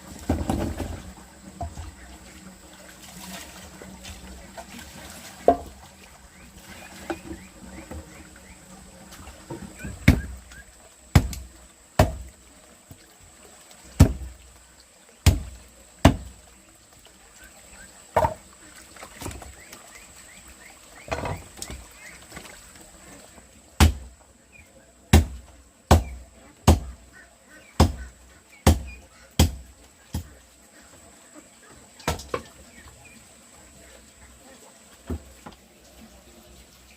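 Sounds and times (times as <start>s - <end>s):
blade chopping on wooden block: 28.6s - 29.6s.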